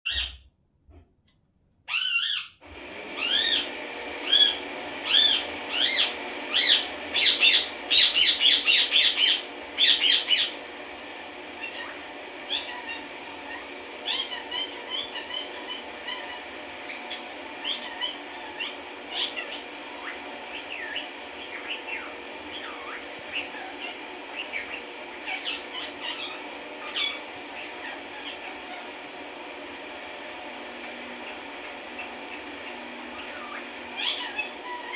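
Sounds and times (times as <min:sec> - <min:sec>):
small animal high calls: 0:11.6 - 0:20.2, 0:33.2 - 0:34.9.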